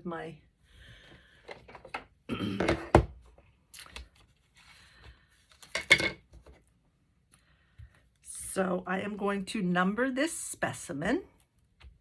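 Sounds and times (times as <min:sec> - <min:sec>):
objects clattering and knocking: 0:01.4 - 0:03.2, 0:05.6 - 0:06.6
rustling and handling noises: 0:03.2 - 0:06.9.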